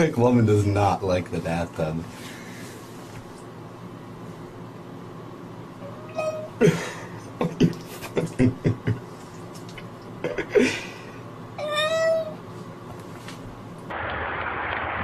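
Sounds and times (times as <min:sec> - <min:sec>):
cat meowing: 0:05.8 - 0:06.6, 0:11.6 - 0:12.4.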